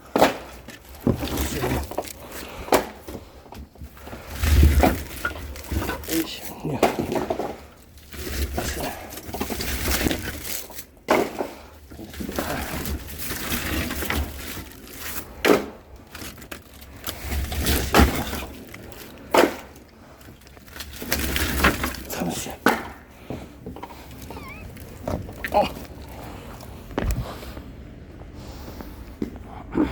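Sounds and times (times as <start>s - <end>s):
firewood logs knocking: 20.8s - 26.2s.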